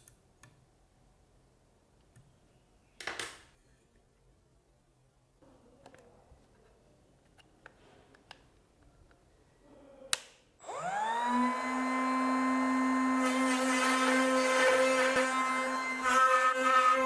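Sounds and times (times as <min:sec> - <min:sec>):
router bit cutting hiss: 0:10.6 - 0:17.0
router motor whine: 0:10.6 - 0:17.0.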